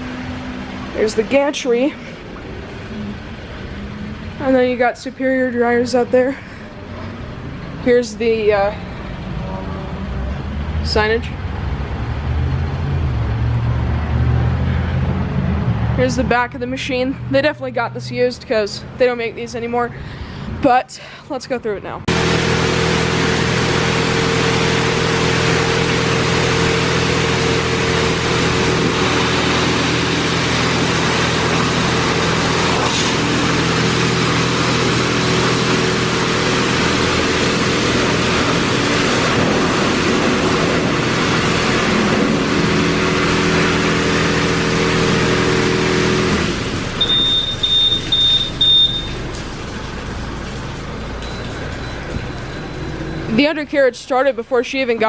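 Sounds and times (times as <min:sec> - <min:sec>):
car wash machinery whooshing: 0:00.0 - 0:18.6, 0:22.1 - 0:55.0
short high beeps: 0:47.0 - 0:49.2.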